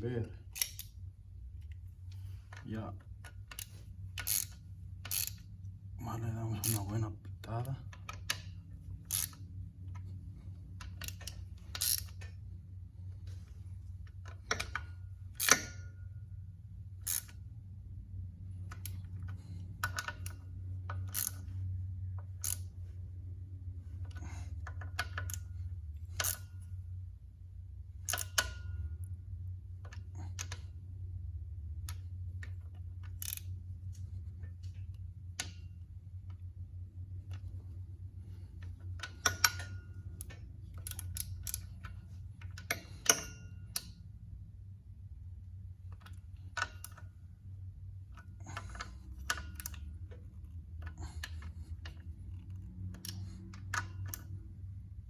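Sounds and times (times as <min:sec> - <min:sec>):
steady low hum: 0:00.0 - 0:55.0
metallic clicks of hand tools: 0:00.4 - 0:01.0, 0:01.7 - 0:05.5, 0:07.6 - 0:09.4, 0:10.8 - 0:12.4, 0:14.1 - 0:16.0, 0:17.0 - 0:17.4, 0:18.6 - 0:21.6, 0:22.3 - 0:22.7, 0:24.0 - 0:26.7, 0:28.0 - 0:28.9, 0:31.8 - 0:36.4, 0:38.3 - 0:44.1, 0:45.9 - 0:47.1, 0:48.1 - 0:54.9.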